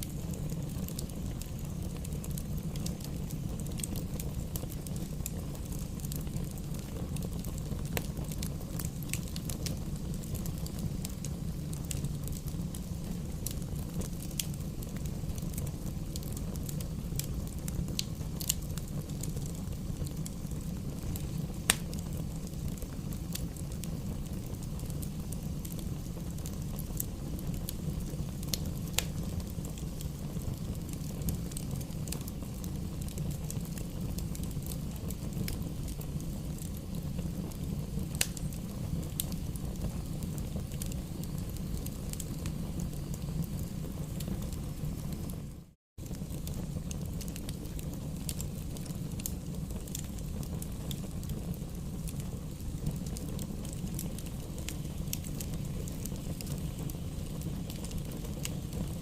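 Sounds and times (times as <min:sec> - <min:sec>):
low rumble of flames: 0:00.0 - 0:59.0
wood fire crackling and popping: 0:00.0 - 0:59.0.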